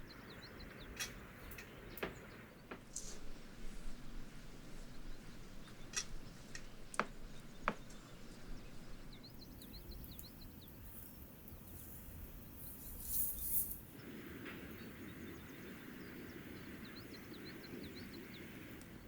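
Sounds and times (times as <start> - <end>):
small bird chirps: 4.9 - 19.0.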